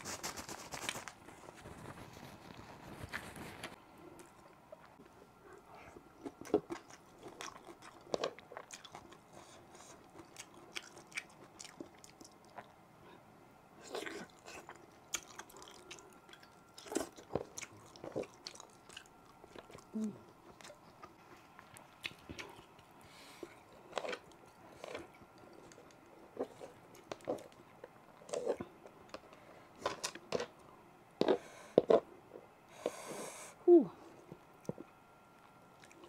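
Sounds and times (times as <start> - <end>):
person chewing food: 4.2 - 12.7, 13.8 - 30.6, 34.6 - 36.0.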